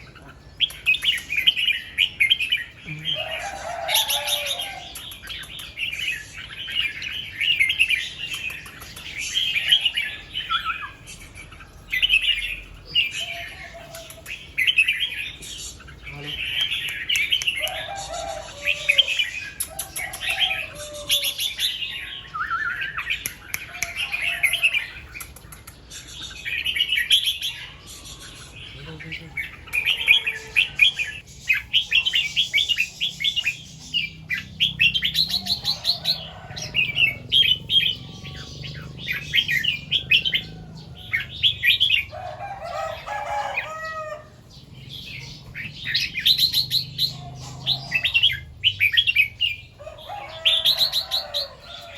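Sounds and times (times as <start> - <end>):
bulbuls warbling: 0.0 - 51.9
high bird chirps: 0.0 - 51.9.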